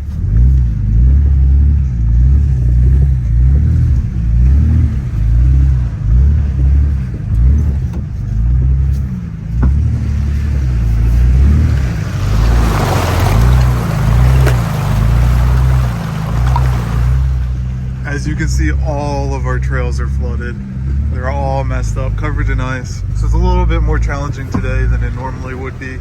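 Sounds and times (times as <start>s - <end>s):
engine rumbling: 0.0s - 26.0s
water splashing: 9.7s - 18.6s.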